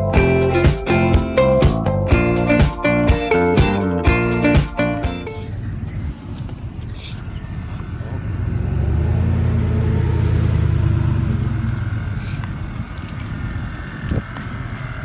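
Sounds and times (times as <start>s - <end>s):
vehicle engine passing by: 5.4s - 15.0s.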